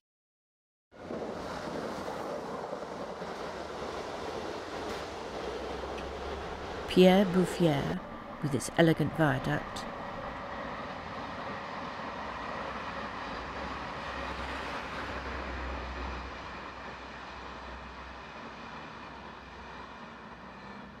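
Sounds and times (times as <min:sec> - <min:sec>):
distant train rumble: 0:01.0 - 0:21.0.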